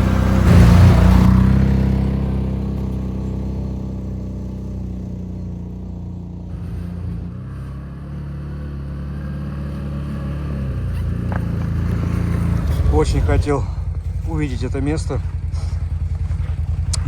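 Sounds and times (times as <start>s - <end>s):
all-terrain vehicle engine running: 0.0s - 17.0s.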